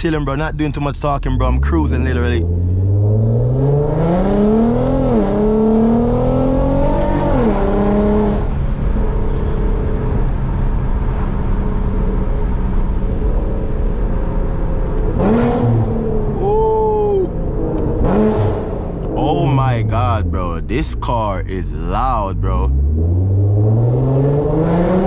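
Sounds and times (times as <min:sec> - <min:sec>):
car engine and loud exhaust accelerating: 0:00.0 - 0:25.0.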